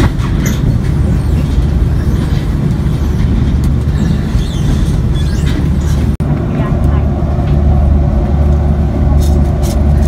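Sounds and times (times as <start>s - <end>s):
train carriage rumble: 0.0s - 10.0s.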